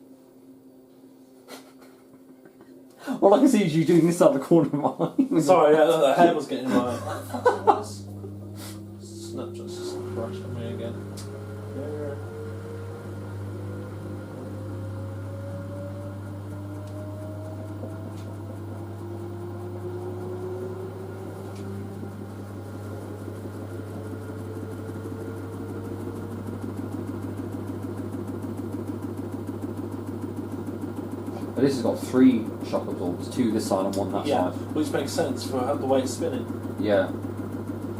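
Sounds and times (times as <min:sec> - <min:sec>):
washer motor whine rising: 0:00.0 - 0:37.9
fast regular drum pulsing: 0:24.6 - 0:37.9.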